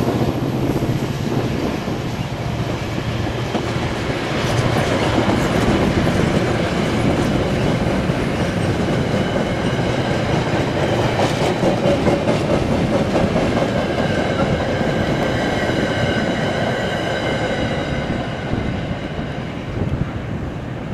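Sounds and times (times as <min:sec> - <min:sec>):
train wheels clattering on track: 0:00.0 - 0:20.1
faint high ringing from rails: 0:13.9 - 0:20.0.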